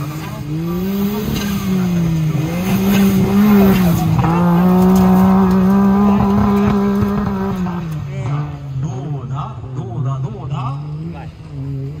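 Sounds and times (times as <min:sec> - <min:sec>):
wheels spinning in loose dirt: 0:00.0 - 0:08.4
car engine revving hard: 0:00.0 - 0:12.0.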